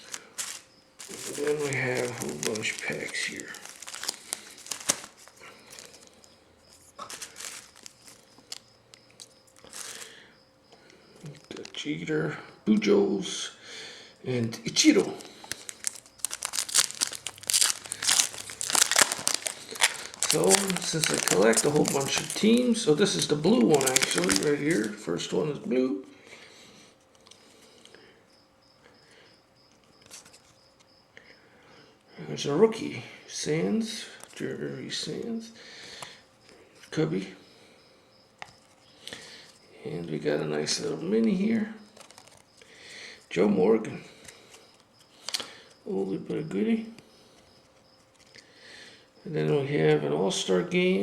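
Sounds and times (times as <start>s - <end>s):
card handling clicks: 0.0s - 6.2s, 23.5s - 25.0s
trading cards rustling: 0.0s - 10.2s, 11.2s - 11.8s, 14.7s - 25.1s, 41.9s - 42.6s
foil wrappers crinkling: 0.0s - 10.3s, 11.2s - 11.8s, 14.6s - 25.3s, 41.2s - 42.8s.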